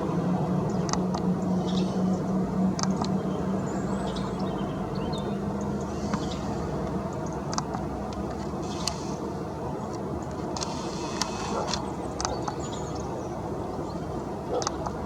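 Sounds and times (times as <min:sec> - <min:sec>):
low hum: 0:00.0 - 0:11.3
distant traffic rumble: 0:00.0 - 0:15.0
small birds chirping: 0:00.6 - 0:07.9, 0:08.6 - 0:09.2, 0:10.7 - 0:15.0.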